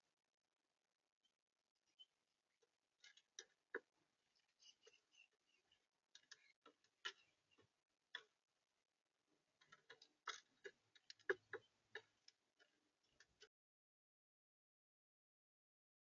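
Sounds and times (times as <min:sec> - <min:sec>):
birds pecking at seed: 0:02.0 - 0:08.5, 0:09.4 - 0:13.5.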